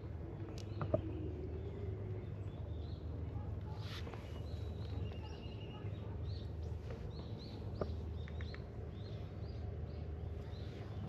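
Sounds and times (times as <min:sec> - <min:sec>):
small birds chirping: 0:04.1 - 0:11.0.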